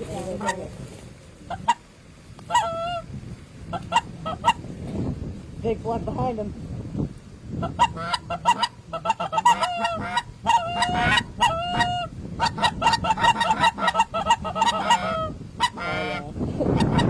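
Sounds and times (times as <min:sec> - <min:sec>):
geese honking and clucking: 0:00.0 - 0:04.7, 0:07.6 - 0:17.0.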